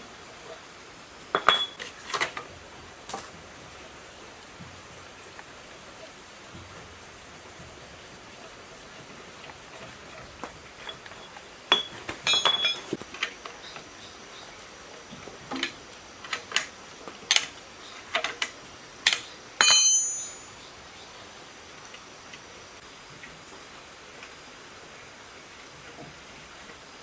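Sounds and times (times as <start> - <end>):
metal tools clinking: 1.3 - 2.4, 10.7 - 13.9, 15.5 - 20.7
metal clank ringing: 1.4 - 1.8, 10.8 - 13.0, 19.6 - 20.8.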